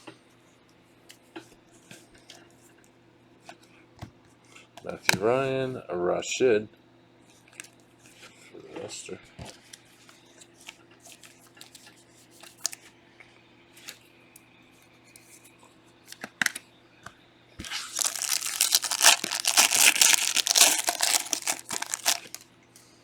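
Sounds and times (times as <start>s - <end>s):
wrapper crinkling and tearing: 17.6s - 22.4s.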